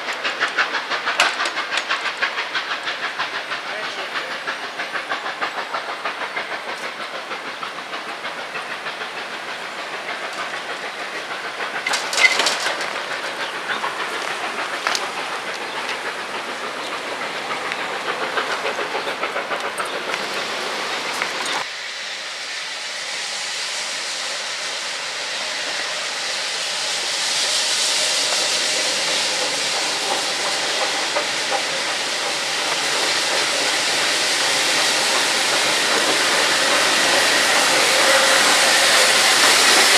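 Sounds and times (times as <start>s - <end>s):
escaping steam hissing: 0.0s - 39.9s
steam locomotive exhaust beats: 0.0s - 39.9s.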